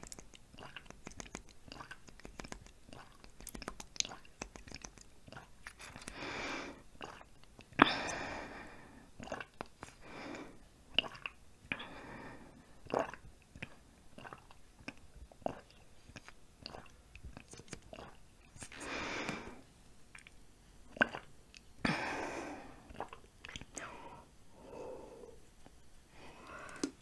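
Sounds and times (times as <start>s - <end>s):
close chewing with mouth smacks: 0.0s - 6.2s, 7.0s - 7.8s, 12.9s - 18.8s.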